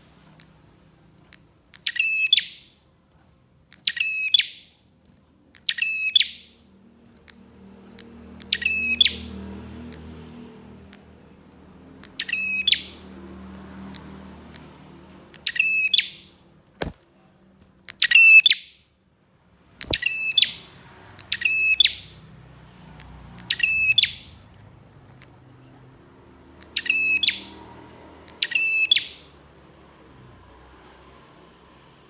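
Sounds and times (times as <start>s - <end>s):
bird singing high sharp notes: 1.8s - 2.8s, 3.8s - 4.8s, 5.6s - 6.6s, 7.3s - 13.2s, 15.4s - 16.4s, 17.9s - 18.8s, 19.8s - 22.3s, 22.9s - 24.4s, 26.5s - 27.6s, 28.2s - 29.4s
sharp click: 16.7s - 18.4s, 19.8s - 20.2s.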